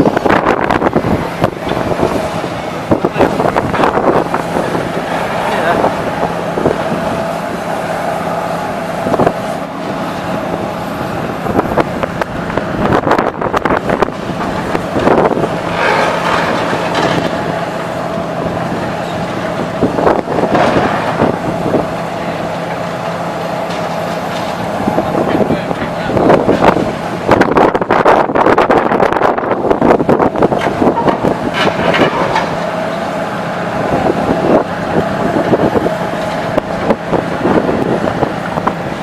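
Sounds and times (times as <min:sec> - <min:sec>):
demolition machinery engine hum: 0:00.0 - 0:39.0
crunching and clattering debris: 0:14.3 - 0:17.6.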